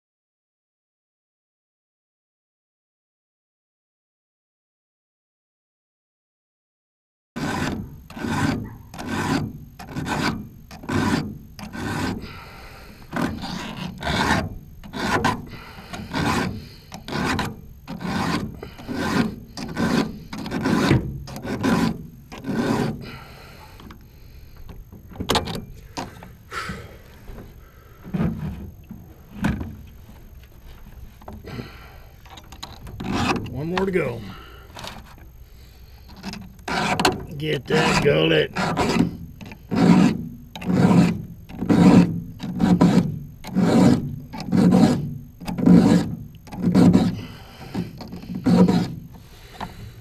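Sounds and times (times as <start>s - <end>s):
file rasping on chainsaw chain: 7.4s - 24.0s, 32.3s - 35.2s, 36.0s - 49.8s.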